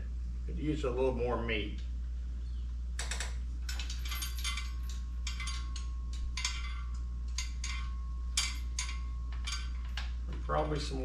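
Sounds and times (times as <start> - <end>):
low hum: 0.0 - 11.0
metal parts clicking and rattling: 3.0 - 11.0.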